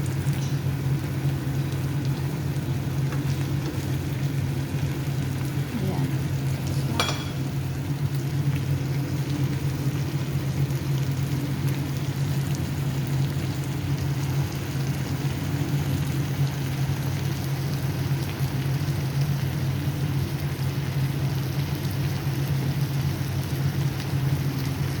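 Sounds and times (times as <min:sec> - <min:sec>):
steady low hum: 0:00.0 - 0:18.9
meat sizzling in a pan: 0:00.0 - 0:25.0.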